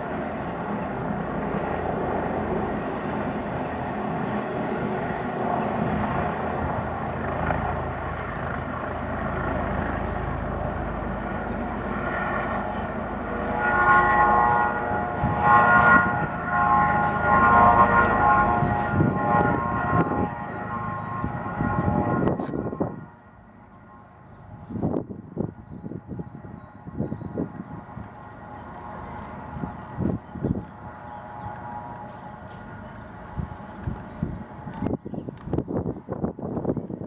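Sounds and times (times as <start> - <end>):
helicopter rumbling in flight: 0.0 - 37.0
loud multi-tone horn blasts: 13.4 - 23.2.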